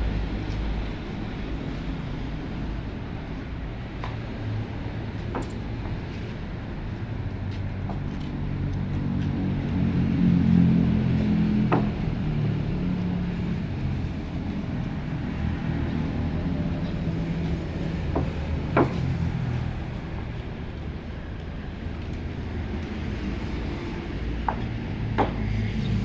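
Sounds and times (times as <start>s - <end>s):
vehicle engine running: 5.8s - 26.0s
sharp knocks: 18.1s - 19.0s, 24.4s - 25.5s.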